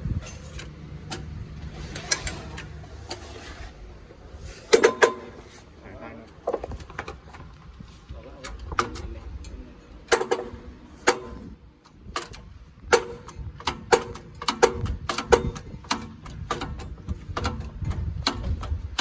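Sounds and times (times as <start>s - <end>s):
hammer striking steel: 10.1s - 11.5s, 12.9s - 15.5s.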